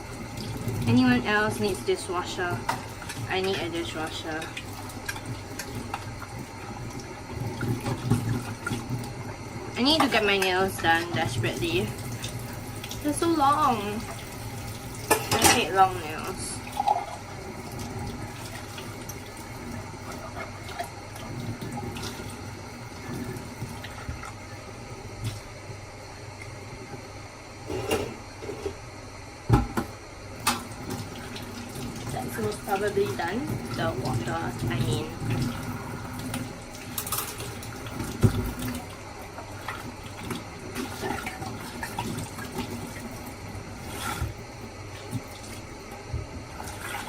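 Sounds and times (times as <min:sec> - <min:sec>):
tap water running into sink: 0:00.0 - 0:24.5, 0:29.5 - 0:47.0
dishes clinking: 0:15.1 - 0:15.8, 0:27.7 - 0:28.8.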